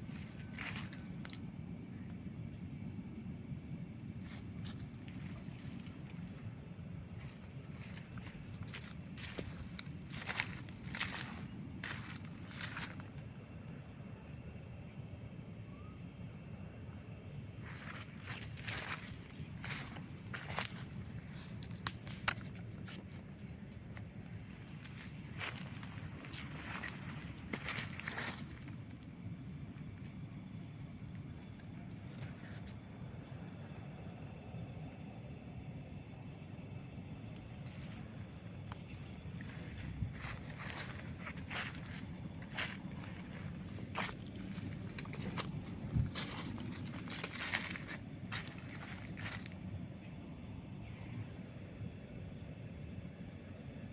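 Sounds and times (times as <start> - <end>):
insect chirping pulses: 0.0 - 53.9
steady high insect hum: 0.0 - 53.9
rustling footsteps through vegetation: 4.2 - 13.3, 17.6 - 29.0, 37.7 - 49.9.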